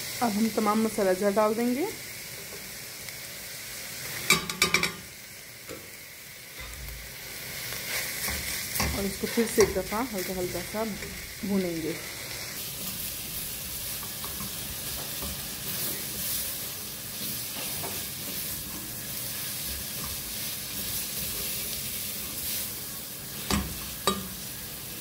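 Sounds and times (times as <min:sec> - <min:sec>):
filling sizzling in a pot: 0:00.0 - 0:25.0
spatula stirring and scraping: 0:13.9 - 0:24.2.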